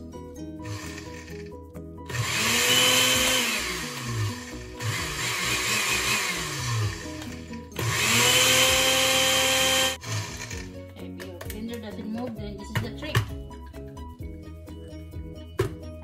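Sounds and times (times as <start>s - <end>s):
blender motor grinding: 0.6s - 10.8s.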